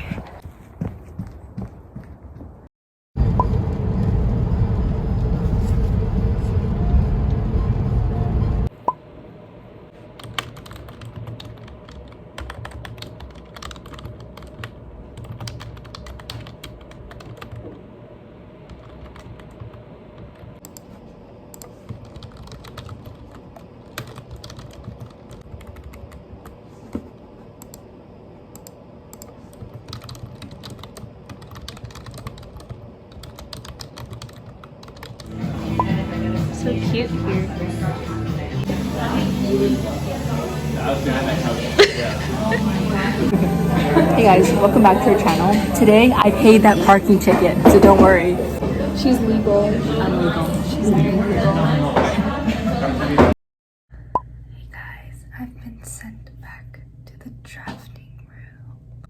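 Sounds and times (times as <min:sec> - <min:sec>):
car road noise rumbling: 0:03.2 - 0:08.7.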